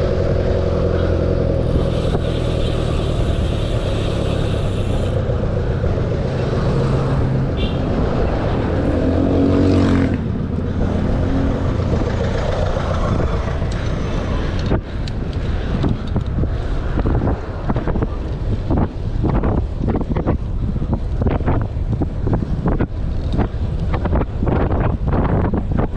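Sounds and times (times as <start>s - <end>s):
motor vehicle passing close: 0.0s - 18.4s
road traffic: 0.0s - 25.9s
wind rushing over microphone: 0.0s - 25.9s.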